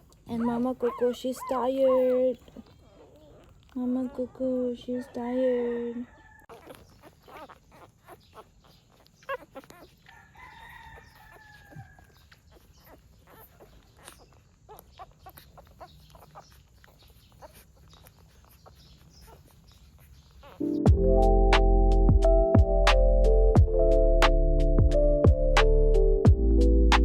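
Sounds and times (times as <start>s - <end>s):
newborn animals squeaking and whimpering: 0.0s - 20.8s.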